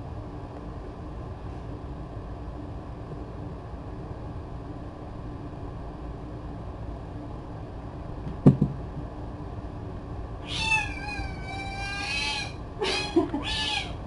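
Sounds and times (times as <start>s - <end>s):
short knock: 8.3s - 8.8s
cat meowing: 10.4s - 14.0s.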